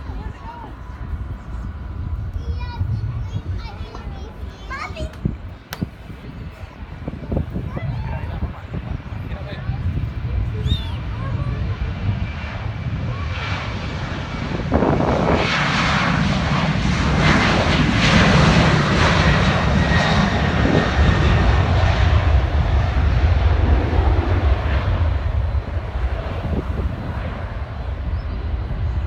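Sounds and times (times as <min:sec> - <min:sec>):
jet engine roar: 0:00.0 - 0:29.0.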